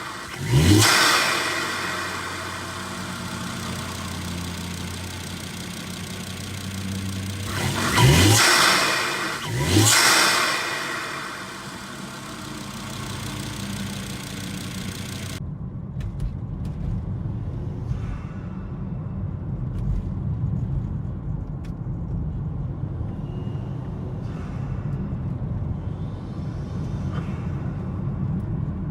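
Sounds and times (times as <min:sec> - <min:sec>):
car engine deep rumble: 0:00.0 - 0:17.8.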